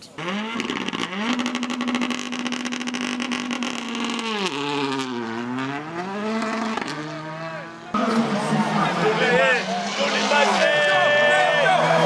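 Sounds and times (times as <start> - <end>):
rally car engine revving with crackle: 0.0 - 8.3.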